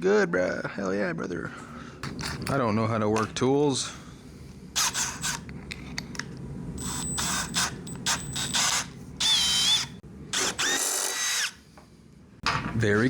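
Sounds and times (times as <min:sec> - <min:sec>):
power drill drilling: 0:04.8 - 0:05.4, 0:06.8 - 0:11.6.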